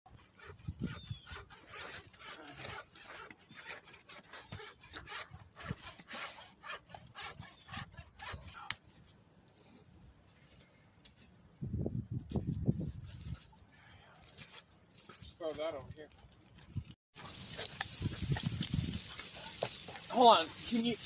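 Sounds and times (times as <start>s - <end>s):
snow crunching and scraping: 17.2s - 21.0s.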